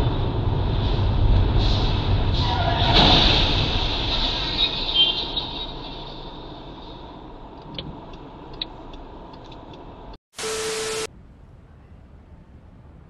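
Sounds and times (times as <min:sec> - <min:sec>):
vehicle road noise: 0:00.0 - 0:11.4
loud static hiss: 0:10.4 - 0:11.1.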